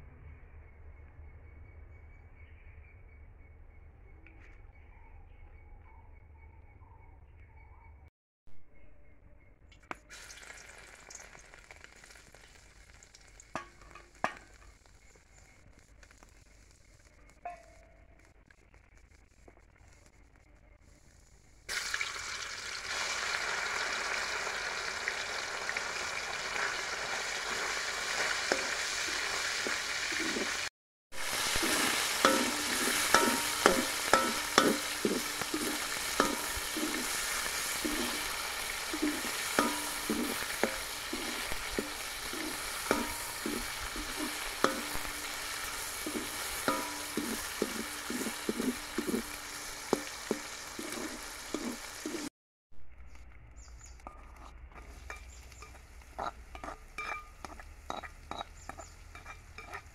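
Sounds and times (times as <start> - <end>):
chicken sizzling in hot oil: 9.8 - 52.3, 53.6 - 59.9
metal ladle scraping a wok: 27.4 - 52.3, 54.0 - 59.9.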